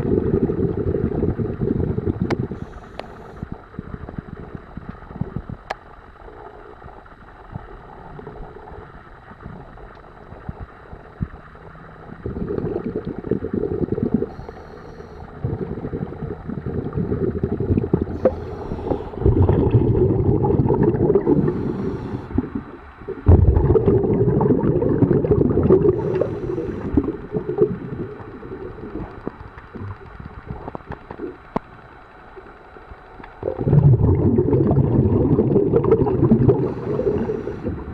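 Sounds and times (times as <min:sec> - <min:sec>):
low hiss: 0:00.0 - 0:37.9
underwater bubbles gurgling: 0:00.0 - 0:37.9
small ticks: 0:02.2 - 0:11.5.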